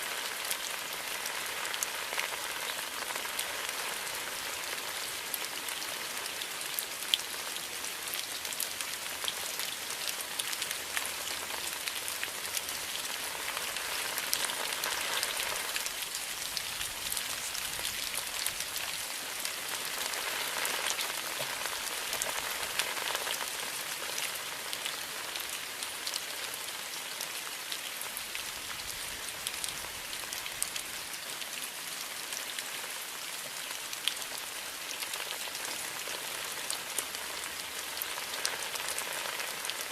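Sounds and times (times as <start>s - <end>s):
steady rain falling: 0.0s - 39.9s
raindrops ticking: 8.1s - 26.6s.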